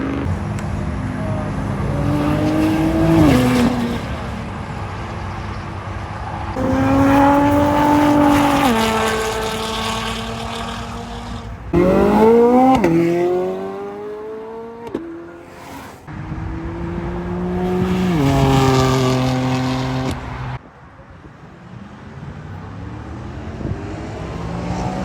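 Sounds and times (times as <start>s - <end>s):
car engines accelerating hard: 0.0s - 20.6s, 22.0s - 25.0s.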